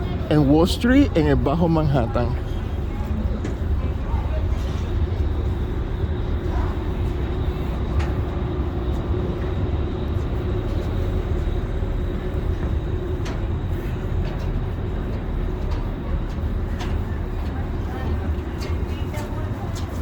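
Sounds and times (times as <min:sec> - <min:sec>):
faint hum: 0:00.0 - 0:19.8
low engine rumble: 0:00.0 - 0:20.0.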